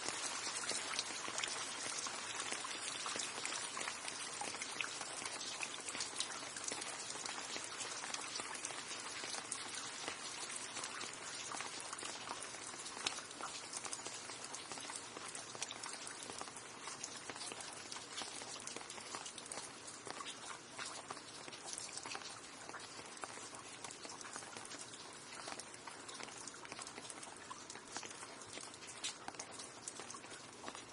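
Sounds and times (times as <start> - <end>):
rain pattering: 0.0 - 30.9.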